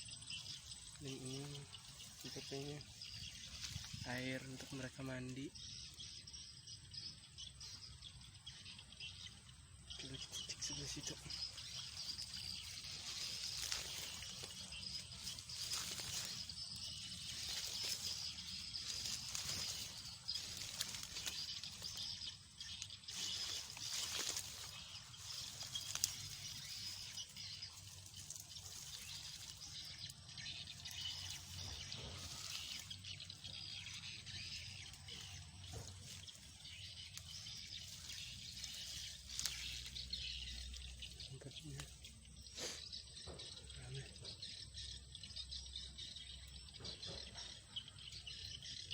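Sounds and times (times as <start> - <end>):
footsteps through grass: 0.0 - 6.3, 10.0 - 42.8
stems and leaves crackling: 0.0 - 8.1, 8.8 - 48.9
outdoor ambience hiss: 0.0 - 48.9.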